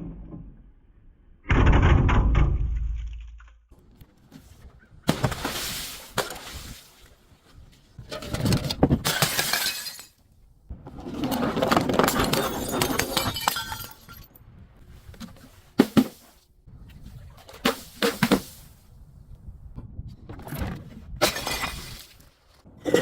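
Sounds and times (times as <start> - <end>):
glass shattering: 9.1 - 10.2, 12.1 - 14.4, 21.2 - 22.1.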